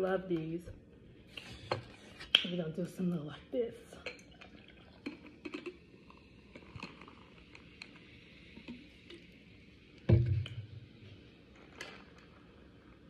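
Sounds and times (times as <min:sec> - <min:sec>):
person sipping drink: 0:04.0 - 0:09.4.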